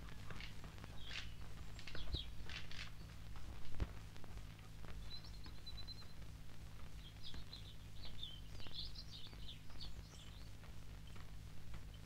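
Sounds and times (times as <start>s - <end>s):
faint low hum: 0.0s - 12.0s
songbird trilling and chirping: 0.9s - 3.1s, 5.0s - 6.2s, 7.0s - 11.2s.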